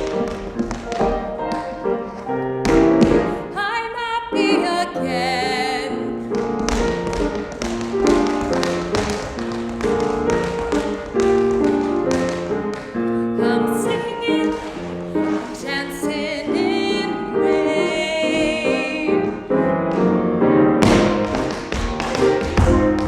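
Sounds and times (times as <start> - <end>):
tap shoes striking stage: 0.0 - 3.4, 6.3 - 16.1, 20.8 - 23.0
piano accompaniment: 0.0 - 23.0.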